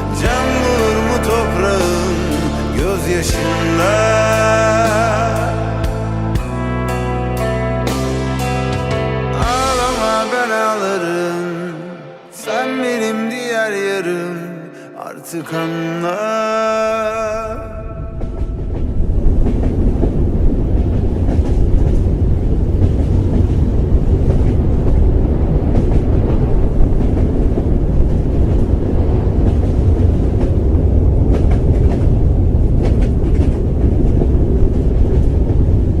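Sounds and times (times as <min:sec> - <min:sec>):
loud steady low rumble: 0:00.0 - 0:10.7, 0:17.1 - 0:36.0
music: 0:00.0 - 0:18.5.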